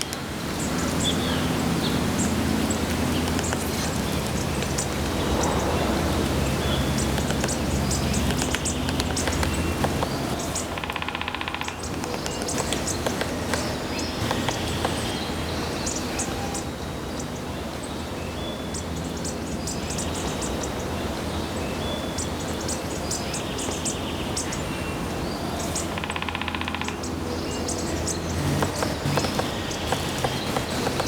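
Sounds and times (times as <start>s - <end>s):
outdoor background hum: 0.0s - 31.0s
woodpecker tapping on bark: 2.2s - 5.4s, 6.6s - 15.7s, 25.9s - 27.2s, 28.0s - 31.0s
short rapid buzz: 28.3s - 31.0s.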